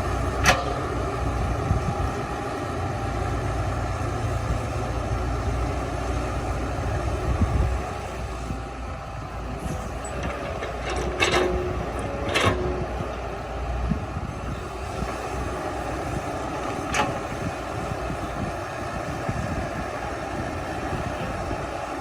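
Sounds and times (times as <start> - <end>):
bulldozer diesel engine running: 0.0 - 22.0
metallic clanks: 10.1 - 12.7.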